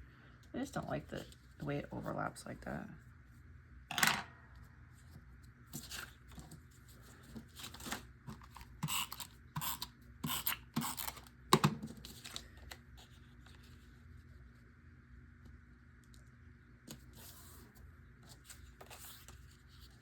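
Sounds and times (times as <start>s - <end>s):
paper rustling and crinkling: 5.0s - 8.8s, 11.9s - 14.6s, 18.2s - 20.0s.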